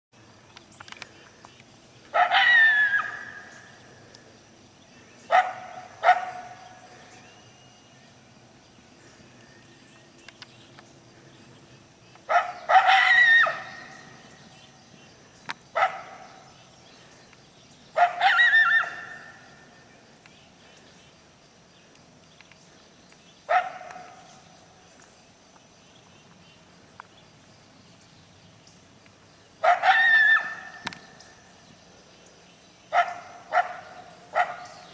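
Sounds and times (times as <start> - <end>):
coyote barking and yipping: 2.1 - 3.7, 5.3 - 7.1, 12.2 - 14.4, 15.7 - 16.5, 17.9 - 19.6, 23.5 - 24.3, 29.6 - 31.2, 32.9 - 34.9.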